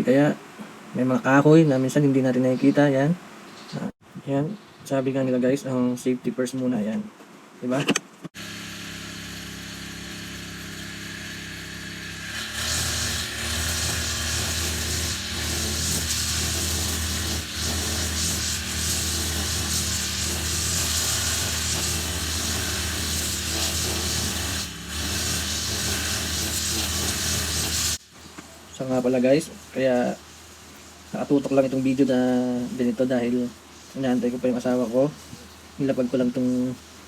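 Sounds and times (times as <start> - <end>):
brush cutter engine: 8.4 - 28.0.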